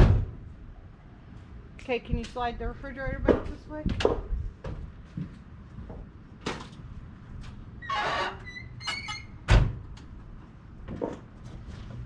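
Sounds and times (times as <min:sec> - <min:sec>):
refrigerator squeaky scrape: 0:07.8 - 0:09.3.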